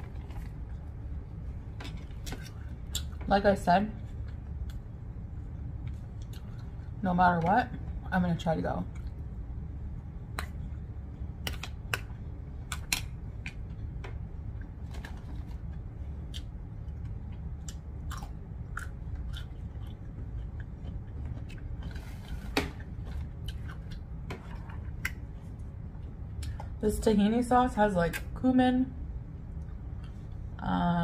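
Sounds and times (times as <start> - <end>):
steady low hum: 0.0 - 31.0
person chewing rice: 5.8 - 7.0, 15.6 - 25.2.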